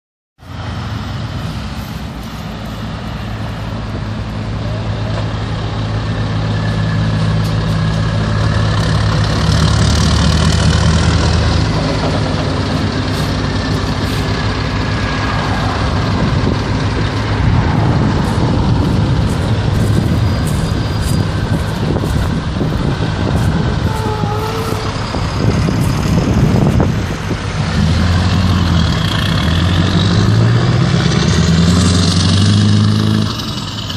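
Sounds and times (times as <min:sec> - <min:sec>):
truck diesel engine running: 0:00.4 - 0:33.9.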